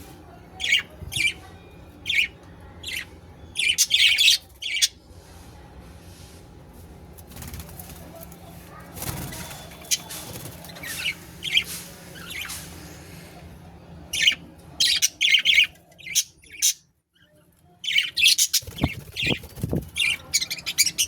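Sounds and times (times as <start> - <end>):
budgerigars chirping: 2.1 - 4.9, 14.1 - 16.8, 17.9 - 21.0
wing flapping: 7.2 - 11.0, 18.6 - 20.3.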